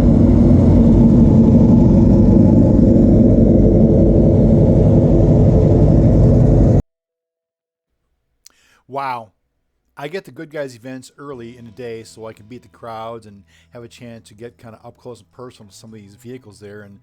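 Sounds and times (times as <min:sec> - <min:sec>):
car engine rumbling: 0:00.0 - 0:06.8.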